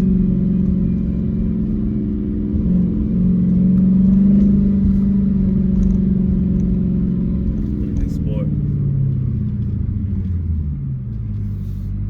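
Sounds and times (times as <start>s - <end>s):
car engine exhaust note: 0.0s - 12.0s.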